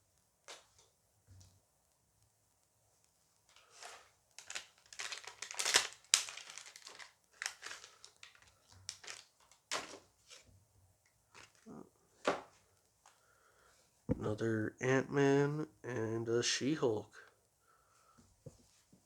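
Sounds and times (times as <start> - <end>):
packet crinkling and tearing: 3.6 - 10.1.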